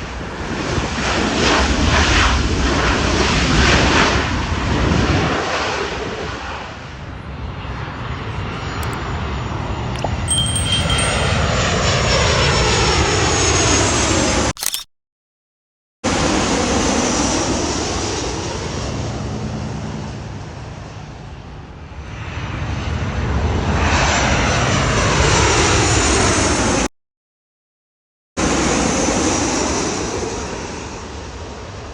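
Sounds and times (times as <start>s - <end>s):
jet airliner passing: 22.2s - 26.8s.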